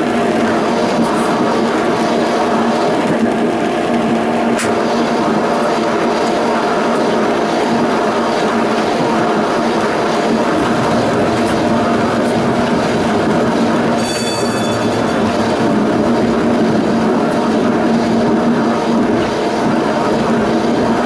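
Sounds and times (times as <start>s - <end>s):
tram rolling on track: 0.0s - 21.0s
low hum: 9.5s - 20.2s.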